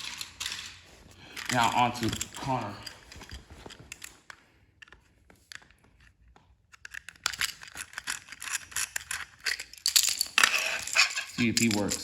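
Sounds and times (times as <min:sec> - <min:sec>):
plastic toy train clicking and rattling: 0:00.0 - 0:02.6, 0:06.7 - 0:12.0.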